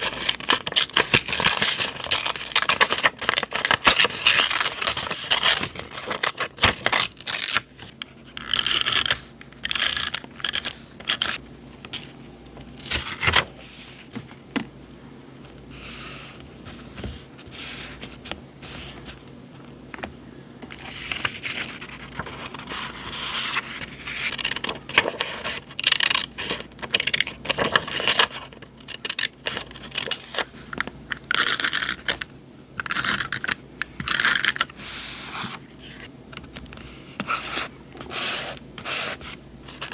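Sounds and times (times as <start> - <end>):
paper rustling and sliding: 12.9 - 14.4, 20.7 - 25.6, 27.5 - 28.4.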